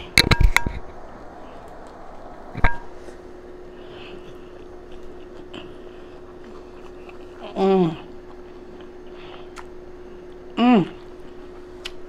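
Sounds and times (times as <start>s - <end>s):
steady hum: 0.0s - 12.0s
person chewing crisp lettuce: 4.1s - 12.0s.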